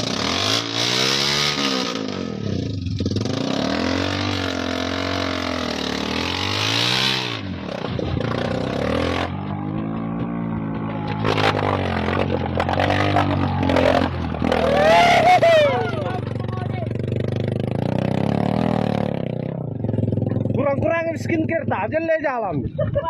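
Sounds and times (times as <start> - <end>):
vehicle engine revving: 0.0 - 21.6.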